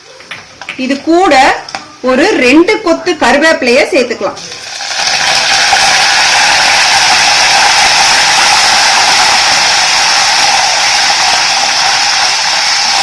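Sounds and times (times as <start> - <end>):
leaves sizzling in hot oil: 4.4 - 13.0.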